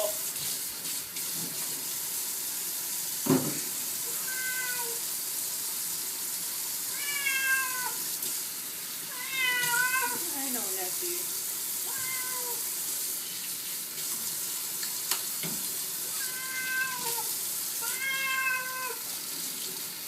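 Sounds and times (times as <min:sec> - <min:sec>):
running tap water: 0:00.0 - 0:20.0
cat meowing: 0:04.1 - 0:05.0, 0:06.9 - 0:08.0, 0:09.1 - 0:10.2, 0:11.8 - 0:12.7, 0:16.1 - 0:19.1.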